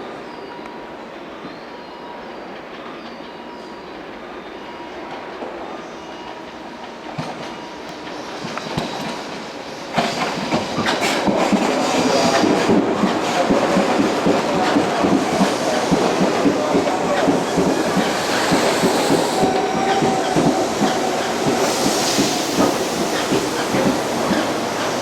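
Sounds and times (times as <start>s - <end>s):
electric train approaching: 0.0s - 25.0s
train wheels clattering over rails: 6.6s - 25.0s.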